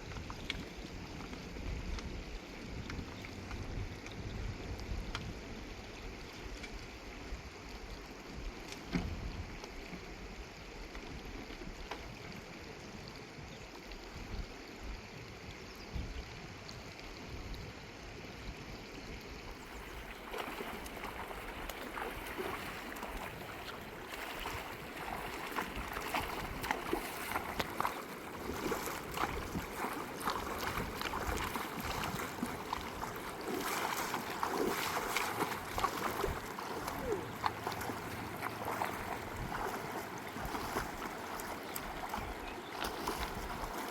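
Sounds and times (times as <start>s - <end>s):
wind noise: 0.0s - 5.7s, 19.6s - 37.3s, 38.7s - 41.1s
running river water: 0.0s - 43.9s.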